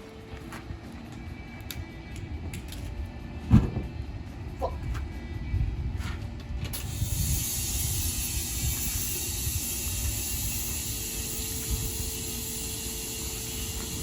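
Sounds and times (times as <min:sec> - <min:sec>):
pressurised air hissing: 0:06.7 - 0:14.0.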